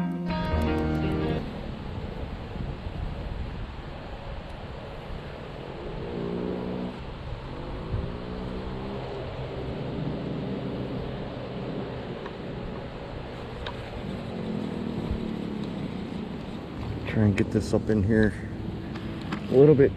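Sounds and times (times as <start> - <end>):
wind: 0.0 - 19.9
water noise: 0.5 - 19.9
boat motor running: 5.6 - 19.9.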